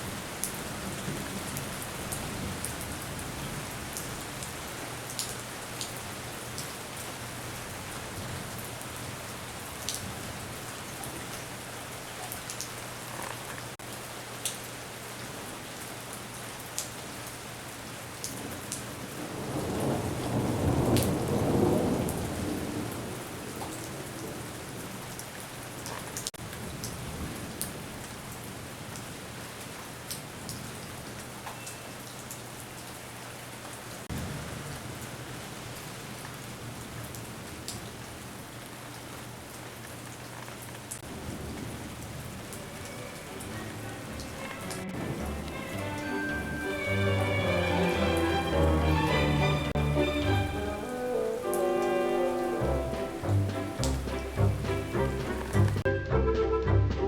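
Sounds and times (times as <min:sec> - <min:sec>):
steady rain: 0:00.0 - 0:56.8
thunder rolling: 0:19.2 - 0:24.5, 0:41.0 - 0:51.5, 0:52.3 - 0:55.9.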